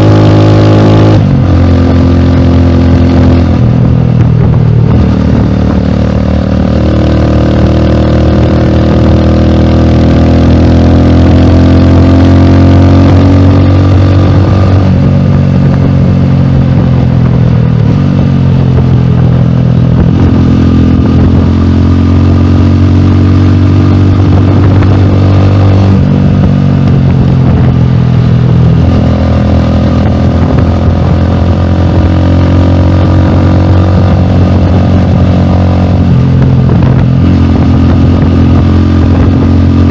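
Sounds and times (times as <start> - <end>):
motorcycle engine running loudly: 0.0 - 39.9.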